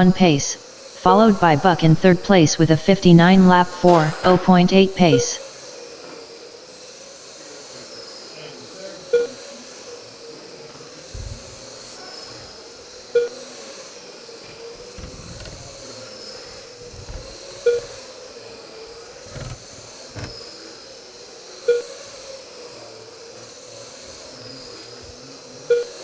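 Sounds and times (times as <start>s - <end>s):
short beeps: 0.0s - 5.4s
electric motors whining: 11.1s - 11.7s, 14.4s - 18.0s, 18.8s - 20.4s.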